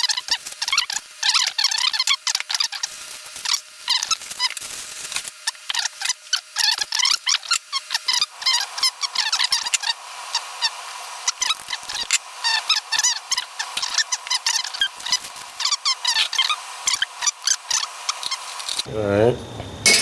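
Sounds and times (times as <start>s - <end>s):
high-pitched chirping and squeaking: 11.3s - 18.9s.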